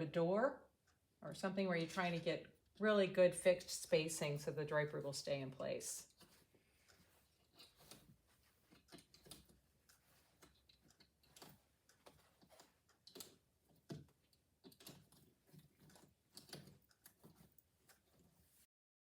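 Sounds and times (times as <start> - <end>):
plastic curtain carriers clicking on rod: 6.0 - 18.2.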